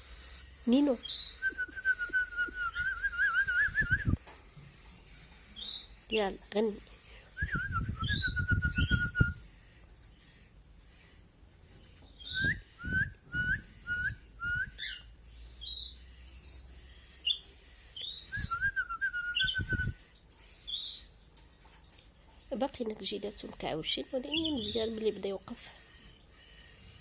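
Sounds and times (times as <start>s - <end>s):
canary chirping: 0.0s - 27.0s
person whistling: 1.4s - 4.1s, 12.3s - 14.7s.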